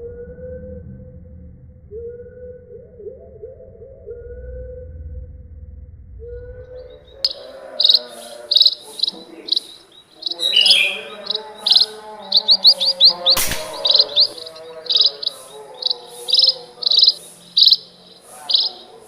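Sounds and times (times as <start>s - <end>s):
small birds chirping: 6.8s - 19.0s
air rifle shot: 13.3s - 14.5s.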